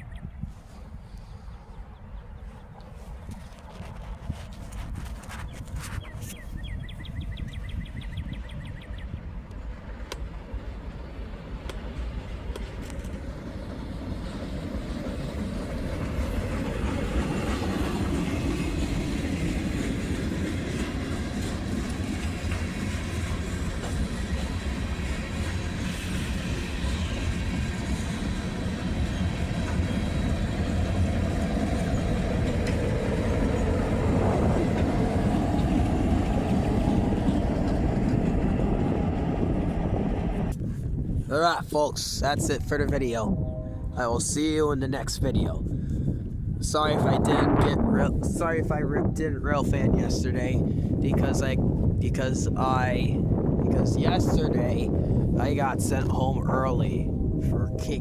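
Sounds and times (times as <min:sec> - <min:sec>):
train wheels clattering on rails: 0:09.6 - 0:40.6.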